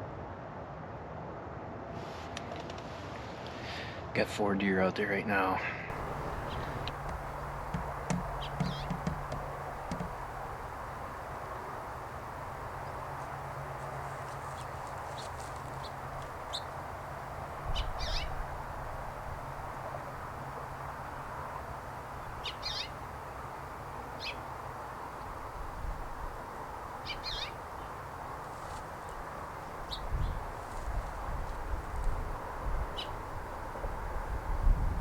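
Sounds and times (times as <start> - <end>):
birds giving short high calls: 5.9 - 11.7, 17.7 - 18.4, 22.4 - 23.0
outdoor hiss: 5.9 - 34.3.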